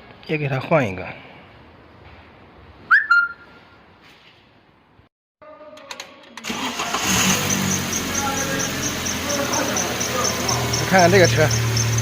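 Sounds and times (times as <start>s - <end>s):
whistle-like chirp: 2.9s - 3.8s.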